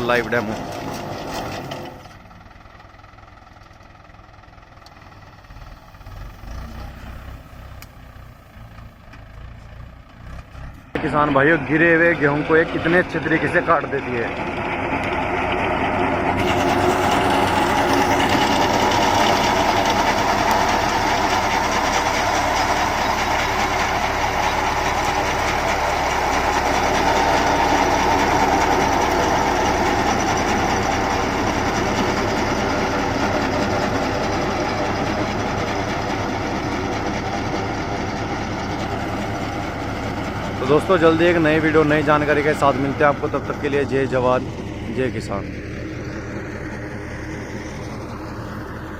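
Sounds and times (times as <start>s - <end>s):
tractor engine running: 0.0s - 48.9s
reaper cutting wheat: 16.4s - 20.6s.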